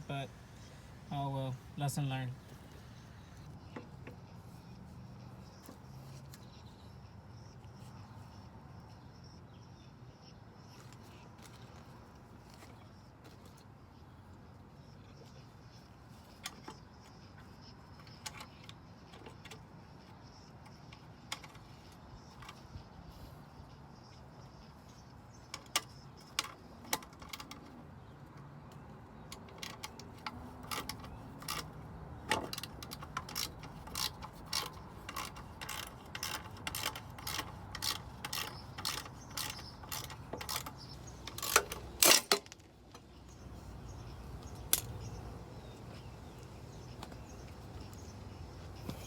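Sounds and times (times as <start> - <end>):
ratchet wrench clicking: 29.3 - 42.6.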